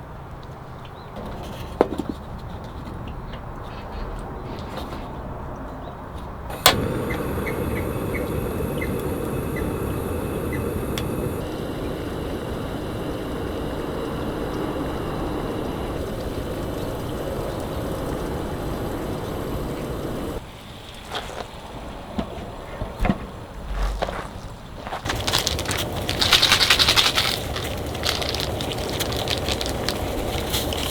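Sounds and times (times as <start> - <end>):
strong wind blowing: 6.5 - 20.4, 25.0 - 30.9.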